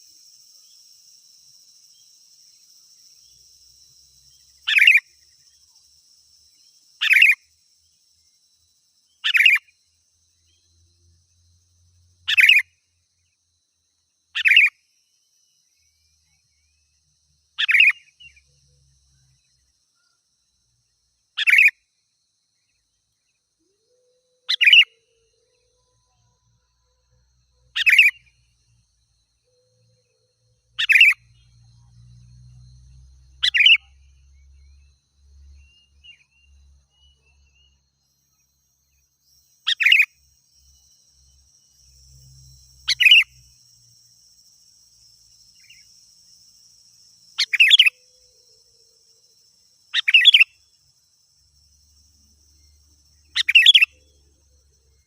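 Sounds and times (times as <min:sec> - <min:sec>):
bird calling: 0:47.4 - 0:48.2, 0:49.9 - 0:50.6, 0:53.3 - 0:54.0.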